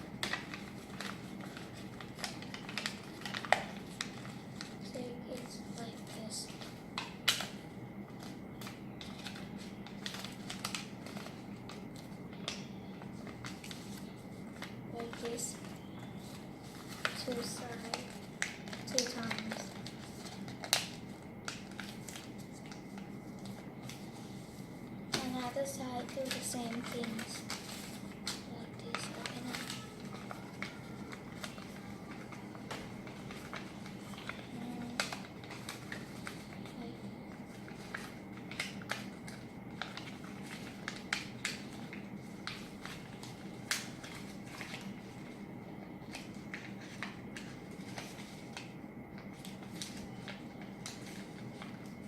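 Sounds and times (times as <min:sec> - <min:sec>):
paper rustling and creasing: 0:00.0 - 0:45.4, 0:46.0 - 0:52.0.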